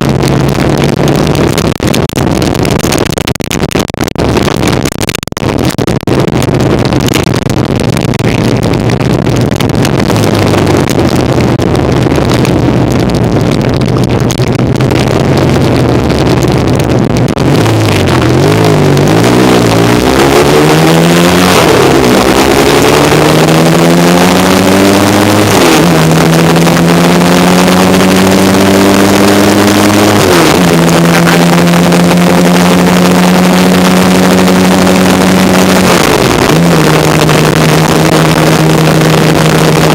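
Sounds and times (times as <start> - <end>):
motorcycle engine accelerating: 0.0 - 39.9
wind and road noise: 0.0 - 39.9.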